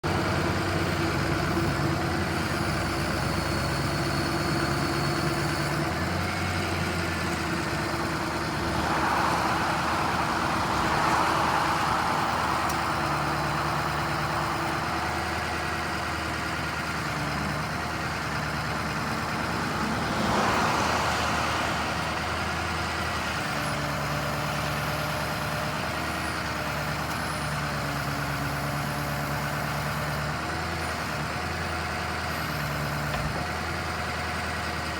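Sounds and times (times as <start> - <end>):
diesel engine idling: 0.0 - 34.9
rushing turbo noise: 2.6 - 26.3.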